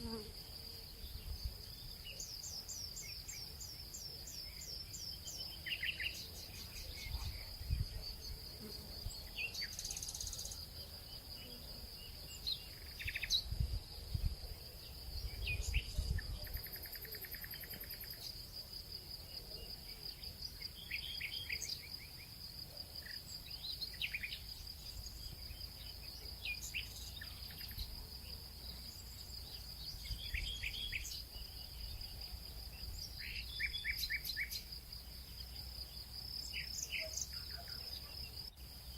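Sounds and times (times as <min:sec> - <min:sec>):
crickets trilling: 0:00.0 - 0:38.9
small birds chirping: 0:23.0 - 0:38.9.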